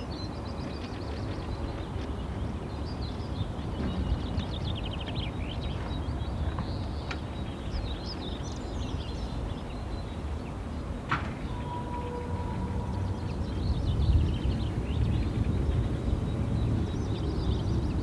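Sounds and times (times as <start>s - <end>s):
wild birds chirping: 2.8s - 18.0s
low rumble: 11.3s - 15.9s.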